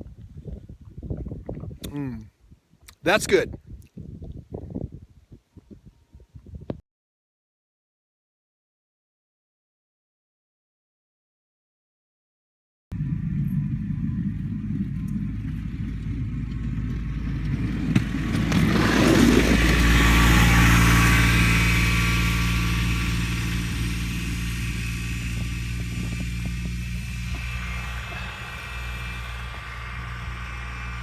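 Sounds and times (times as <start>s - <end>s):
diesel engine running: 12.9s - 31.0s.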